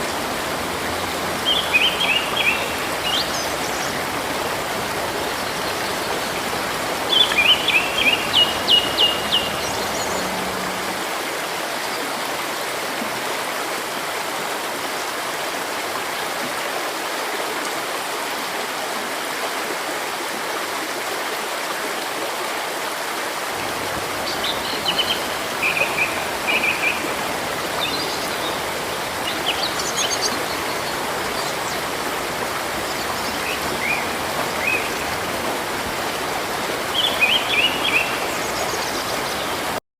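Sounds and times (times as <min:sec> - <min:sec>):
birds chirping: 0:00.0 - 0:11.1, 0:23.6 - 0:39.8
river flowing: 0:00.0 - 0:39.8.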